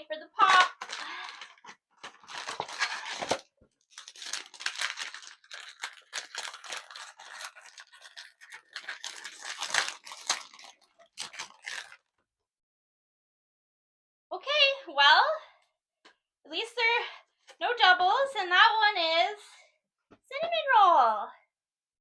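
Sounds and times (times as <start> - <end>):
packaging being torn and crinkled: 0.5 - 12.1.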